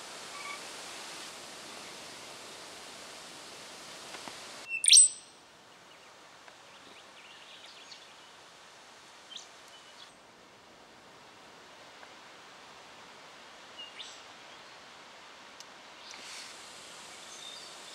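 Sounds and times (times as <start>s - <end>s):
steady hiss: 0.0s - 17.9s
songlark singing: 4.7s - 5.2s.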